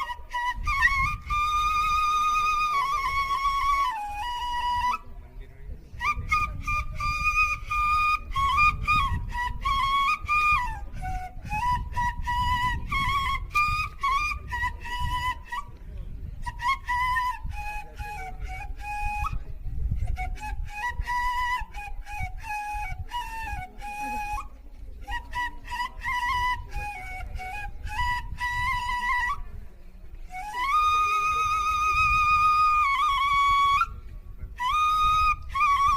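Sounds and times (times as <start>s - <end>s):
flute melody: 0.0s - 35.9s.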